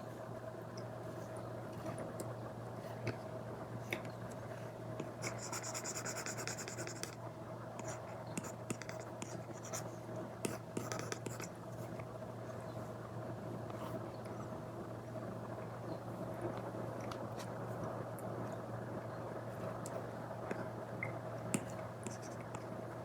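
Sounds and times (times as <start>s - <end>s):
faint steady hum: 0.0s - 23.0s
stylus scratching on screen: 5.2s - 7.2s, 7.8s - 9.9s, 10.5s - 11.5s.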